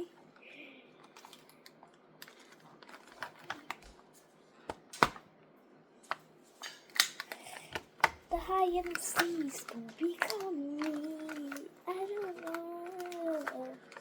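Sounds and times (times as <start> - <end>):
clicks on plastic packaging: 1.0 - 4.0, 6.1 - 14.0
loud plastic snap: 4.7 - 5.3, 6.1 - 11.6.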